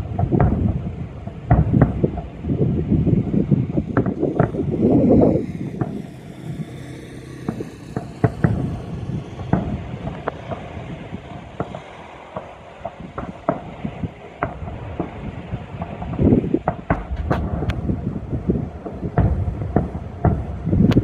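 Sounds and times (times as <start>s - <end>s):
fireworks bangs and pops: 0.0s - 21.0s
steady low rumble: 0.0s - 21.0s.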